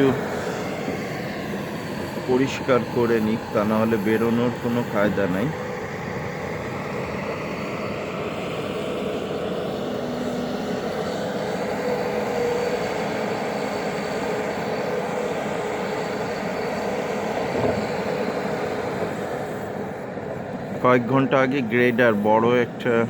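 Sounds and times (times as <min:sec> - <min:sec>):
snow-clearing machine engine droning: 0:00.0 - 0:23.0.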